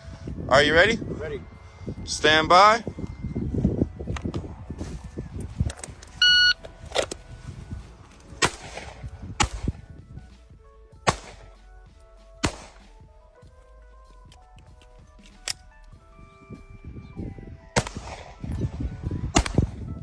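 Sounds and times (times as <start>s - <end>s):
faint background music: 0.0s - 20.0s
shot timer beep: 6.2s - 6.6s
pistol shots: 8.4s - 9.8s, 11.0s - 11.6s, 12.4s - 13.0s, 17.8s - 18.6s, 19.3s - 19.8s.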